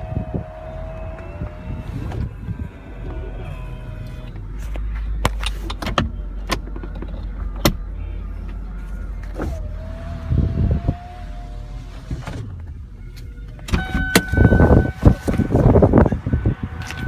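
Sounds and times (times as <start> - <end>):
steady whine: 0.0 - 11.9
convertible top motor hum: 0.0 - 17.0.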